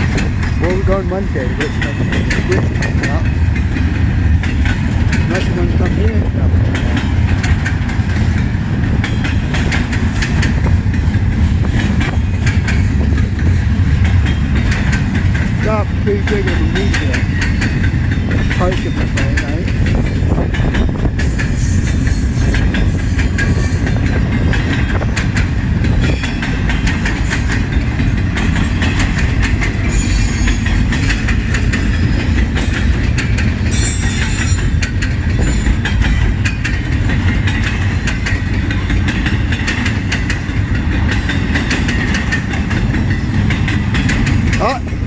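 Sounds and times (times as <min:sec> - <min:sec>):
freight train rumbling past: 0:00.0 - 0:45.0
wheels clattering over rail joints: 0:00.0 - 0:45.0
train wheel squeal: 0:09.2 - 0:10.7, 0:18.8 - 0:29.2, 0:29.8 - 0:36.7.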